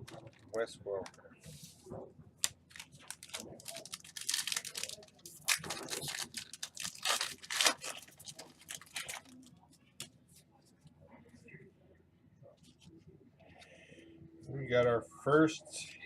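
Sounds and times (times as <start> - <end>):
cards being shuffled: 2.4 - 9.5
foil wrapper tearing and crinkling: 2.4 - 9.5.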